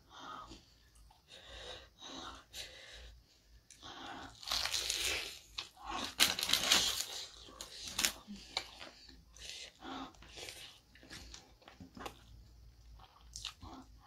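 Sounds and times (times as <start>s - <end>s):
crunching fried chicken: 4.3s - 9.6s.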